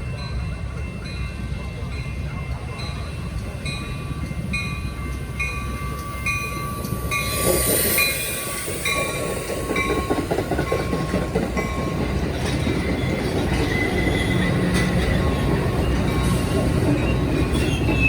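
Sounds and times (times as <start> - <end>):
train rumble: 0.0 - 18.0
wheels clacking over rails: 8.6 - 18.0.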